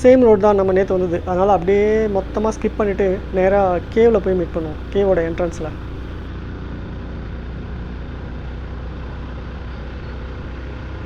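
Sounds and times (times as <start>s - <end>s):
motorcycle engine cruising: 0.0s - 6.3s.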